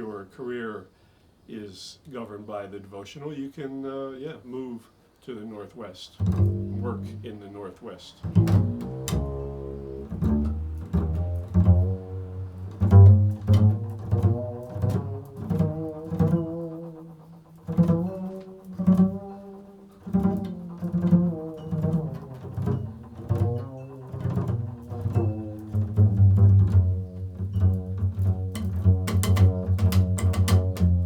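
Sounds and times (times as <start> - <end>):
low plucked notes: 6.2 - 7.4, 8.2 - 31.0.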